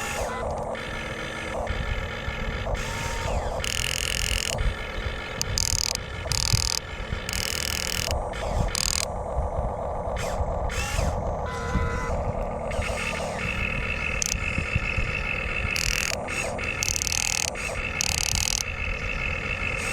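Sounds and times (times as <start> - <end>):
constant low rumble: 0.0 - 19.9
small electric motors whirring: 0.0 - 19.9.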